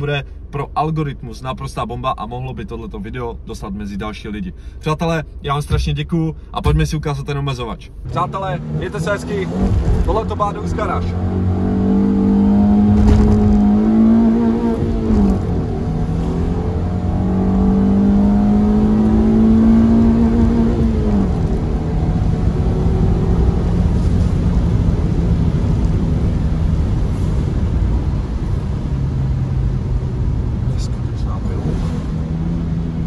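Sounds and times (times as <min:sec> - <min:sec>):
car engine revving: 0:08.0 - 0:33.0.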